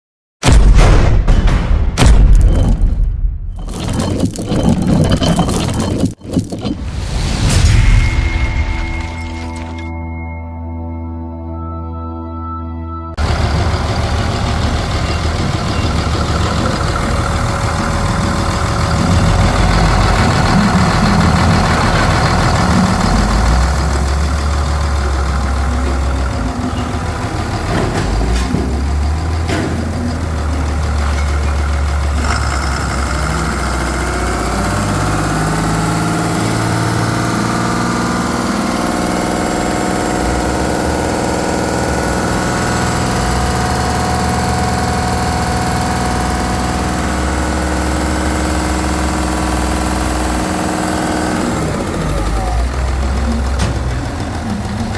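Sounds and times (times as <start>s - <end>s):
diesel engine idling: 13.2s - 54.9s.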